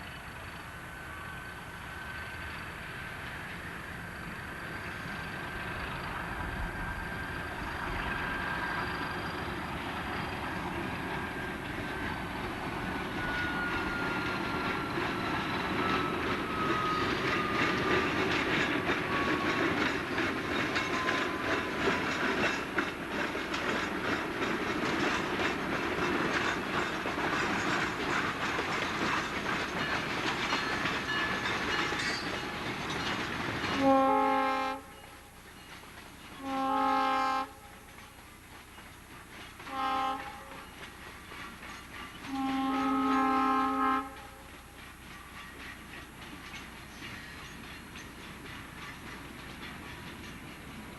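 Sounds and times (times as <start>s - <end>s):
train wheels clicking over rails: 0.0s - 36.6s, 37.4s - 50.9s
train horn blast: 33.8s - 35.1s, 36.4s - 37.7s, 39.6s - 40.6s, 42.3s - 44.5s.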